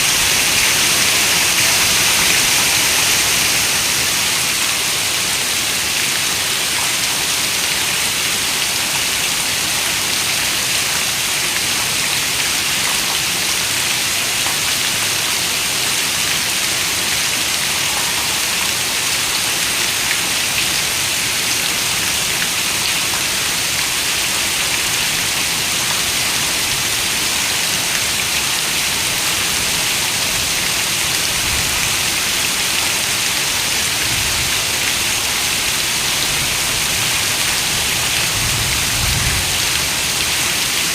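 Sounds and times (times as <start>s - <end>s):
heavy rain on a window: 0.0s - 40.9s.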